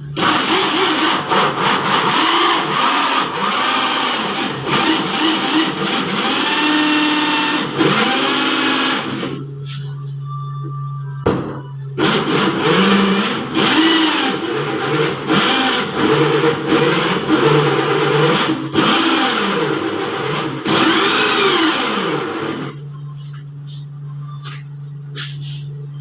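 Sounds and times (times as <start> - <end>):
motor machine running in bursts: 0.0 - 9.8, 12.0 - 26.0.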